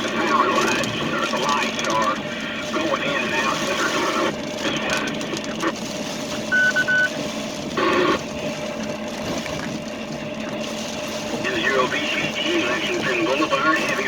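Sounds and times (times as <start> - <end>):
faint hum: 0.0 - 14.0
electronic beep: 6.5 - 7.2.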